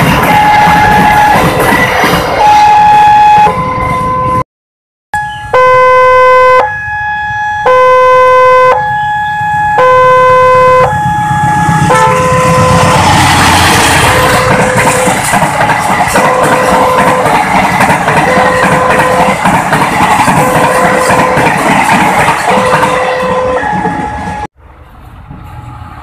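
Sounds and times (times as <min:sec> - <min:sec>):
passing train rumble: 0:00.0 - 0:04.4, 0:05.2 - 0:26.0
two-tone electronic warning signal: 0:00.2 - 0:01.6, 0:02.4 - 0:04.4, 0:05.2 - 0:15.4, 0:16.0 - 0:19.5.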